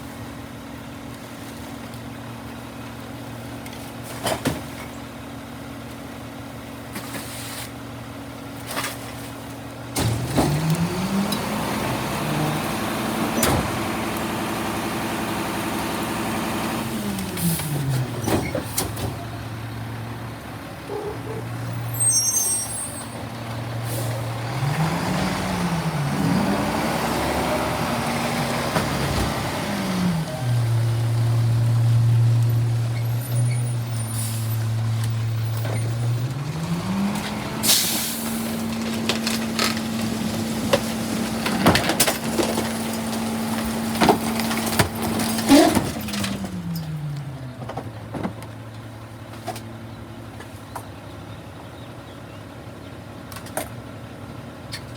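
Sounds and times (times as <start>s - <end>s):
garbage truck engine revving: 9.9s - 48.1s.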